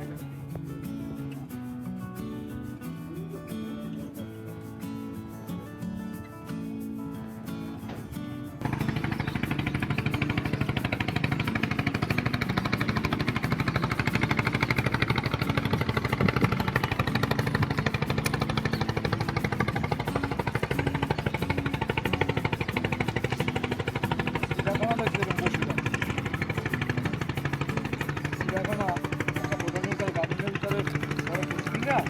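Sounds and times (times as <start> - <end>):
engine running with pulsing beat: 6.9 - 32.0.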